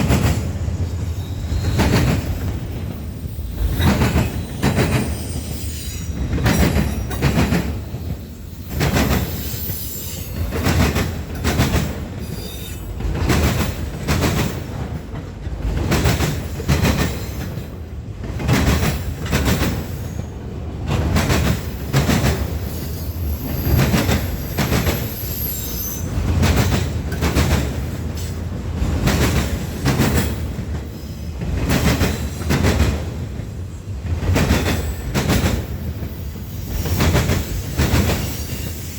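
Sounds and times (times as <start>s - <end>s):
train wheels clacking over rail joints: 0.0s - 0.8s, 1.4s - 25.2s, 26.0s - 38.9s
train rumble: 0.0s - 38.9s
high wheel squeal: 3.0s - 7.2s, 8.1s - 10.5s, 12.2s - 12.9s, 22.7s - 26.2s.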